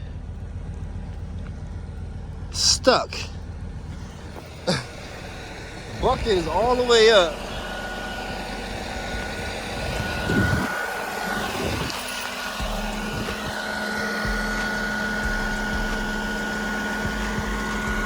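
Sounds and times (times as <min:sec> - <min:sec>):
deep steady hum: 0:00.0 - 0:18.0
truck engine with high whine: 0:00.0 - 0:18.0.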